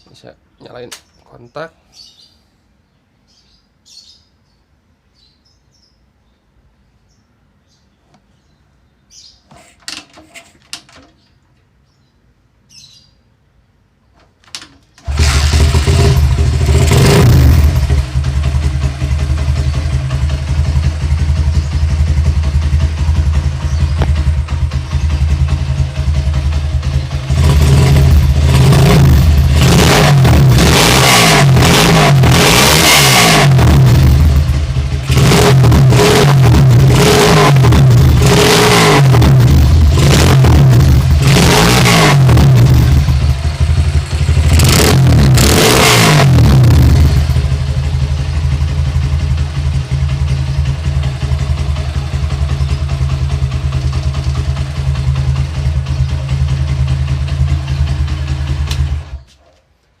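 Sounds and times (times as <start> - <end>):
motorcycle engine revving and idling: 15.0 - 59.4.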